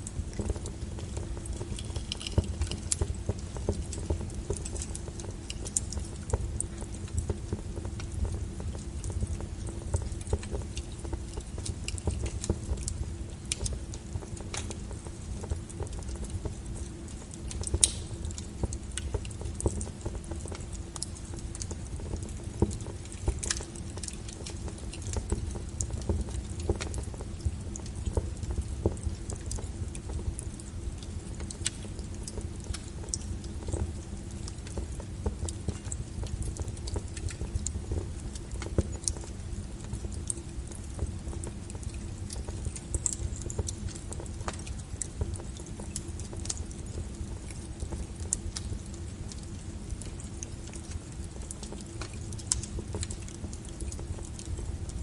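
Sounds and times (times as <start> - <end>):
fire crackling and popping: 0.0 - 55.0
fire rumbling: 0.0 - 55.0.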